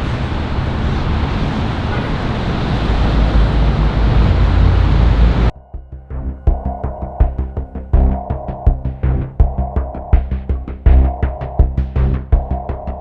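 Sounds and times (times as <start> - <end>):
wind buffeting microphone: 0.0 - 5.5
city traffic: 0.0 - 5.6.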